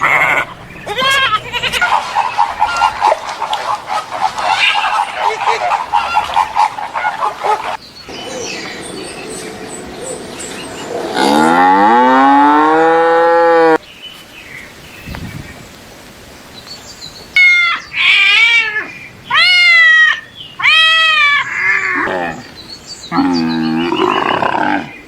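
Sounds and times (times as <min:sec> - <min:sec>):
cow mooing: 0:11.2 - 0:13.8.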